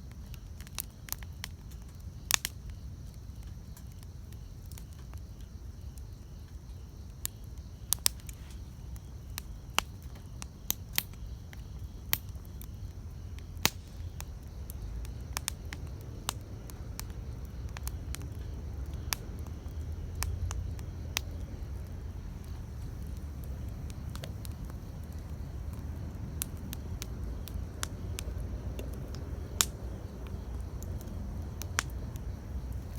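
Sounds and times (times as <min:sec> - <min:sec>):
campfire crackling: 0:00.0 - 0:32.9
low steady rumble: 0:11.6 - 0:32.9.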